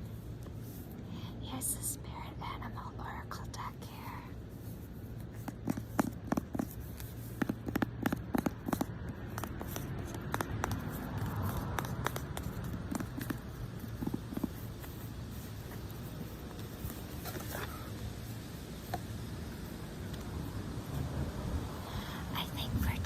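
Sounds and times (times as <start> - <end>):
traffic rumble: 0.0 - 23.0
cards tapping and clicking: 5.3 - 15.0.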